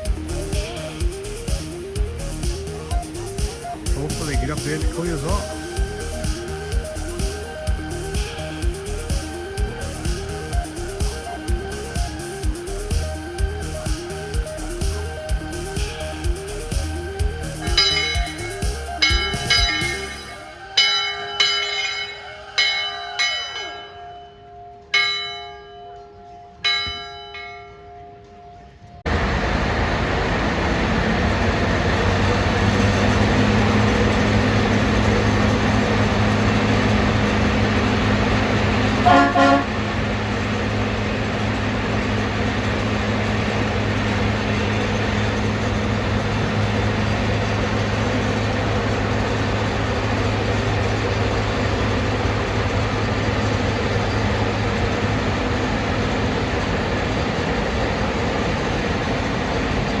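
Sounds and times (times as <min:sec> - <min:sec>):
locomotive humming: 0:00.0 - 1:00.0
train horn toot: 0:39.0 - 0:39.9.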